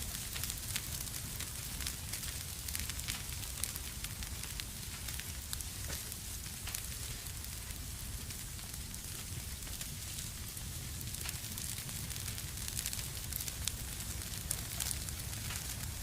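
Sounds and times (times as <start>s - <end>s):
fire popping: 0.0s - 16.0s
wood fire crackling: 0.0s - 16.0s.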